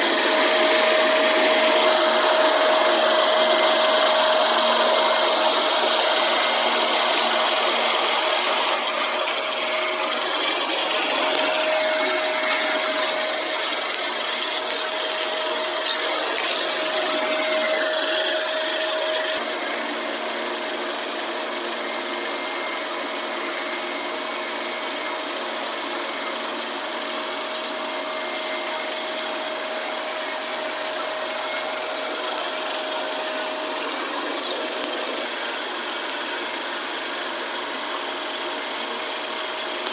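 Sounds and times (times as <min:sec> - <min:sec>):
vacuum cleaner whining: 0:00.0 - 0:39.9
debris crackling through hose: 0:00.1 - 0:19.4, 0:24.6 - 0:36.3.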